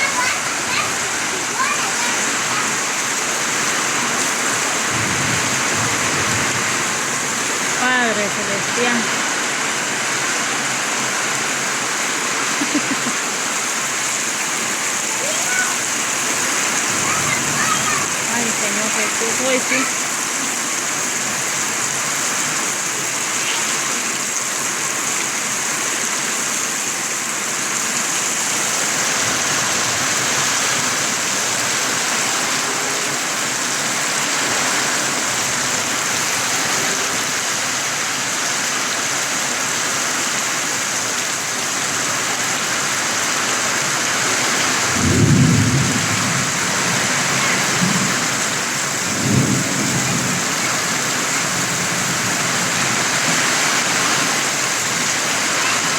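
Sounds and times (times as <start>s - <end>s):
heavy rain pouring: 0.0s - 55.9s
low thunder rumbles: 4.8s - 7.0s, 44.9s - 52.6s.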